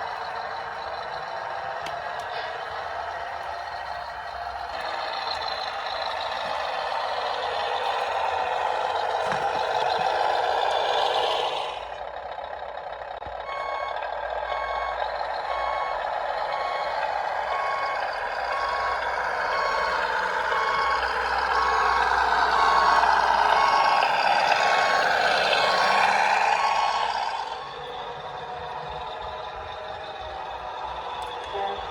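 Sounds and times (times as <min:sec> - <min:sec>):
model truck engine sound: 0:00.0 - 0:31.9
reversing beeper: 0:13.4 - 0:31.9.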